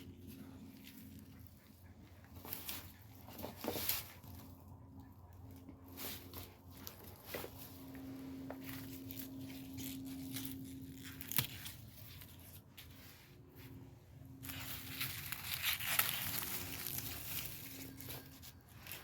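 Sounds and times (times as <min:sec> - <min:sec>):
leaves rustling and tearing: 0:00.0 - 0:04.8, 0:05.4 - 0:19.0
faint steady hum: 0:00.0 - 0:19.0
plant stem snapping: 0:10.3 - 0:11.8.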